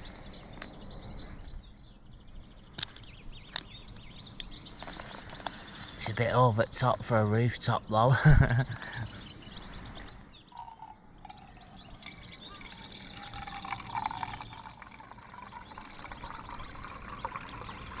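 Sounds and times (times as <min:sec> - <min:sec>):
small birds chirping and trilling: 0:00.0 - 0:18.0.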